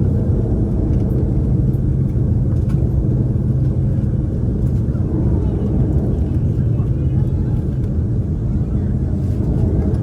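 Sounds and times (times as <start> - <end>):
airliner cabin rumble while taxiing: 0.0 - 10.0.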